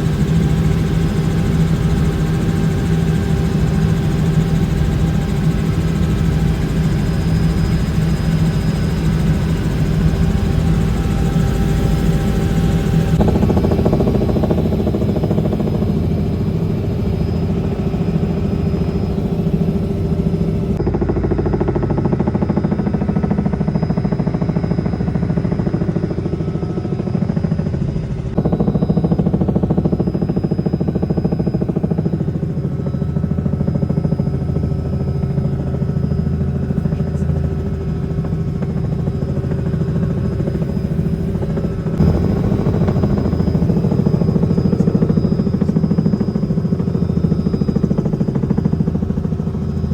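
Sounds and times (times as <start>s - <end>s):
helicopter engine and rotor drone: 0.0s - 49.9s
high whine: 33.7s - 49.9s.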